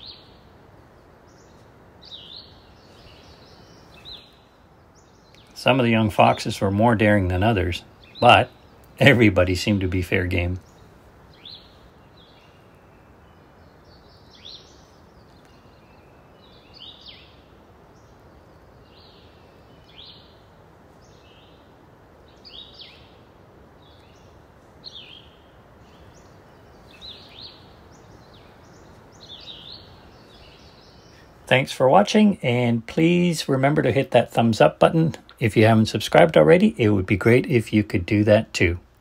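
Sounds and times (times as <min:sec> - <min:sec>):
faint bird notes: 0:00.0 - 0:38.8
steady background hiss: 0:00.0 - 0:39.0.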